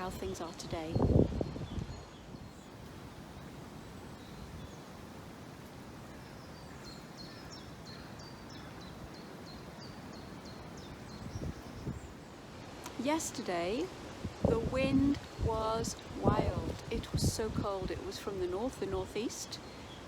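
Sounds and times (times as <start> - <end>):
small bird singing: 0.0 - 5.1, 6.0 - 12.4
wind rustling trees: 0.0 - 20.0.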